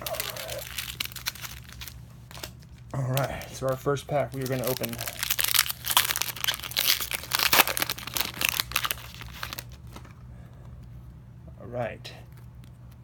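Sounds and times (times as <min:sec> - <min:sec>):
wrapper tearing and crinkling: 0:00.0 - 0:10.0.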